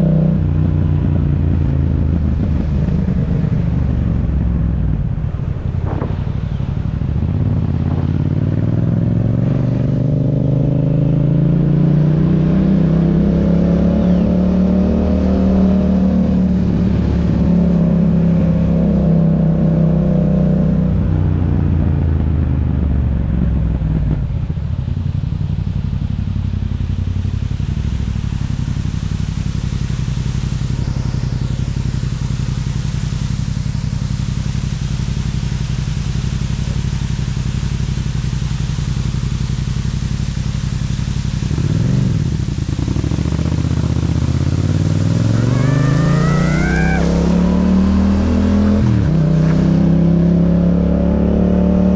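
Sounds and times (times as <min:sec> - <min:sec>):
motorcycle engine revving: 0:00.0 - 0:23.2, 0:23.9 - 0:51.9.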